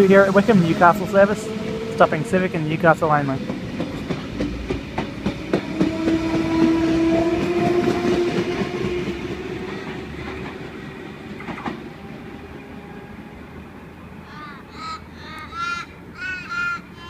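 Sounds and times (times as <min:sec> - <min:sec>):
train wheels clicking over rail joints: 0:00.0 - 0:12.0
electric train whine: 0:00.0 - 0:15.5.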